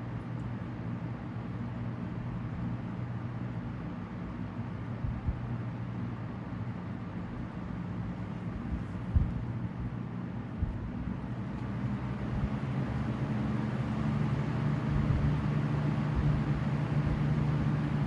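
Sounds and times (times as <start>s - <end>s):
box fans running: 0.0s - 18.0s
low thumps: 8.6s - 9.9s, 12.2s - 12.6s.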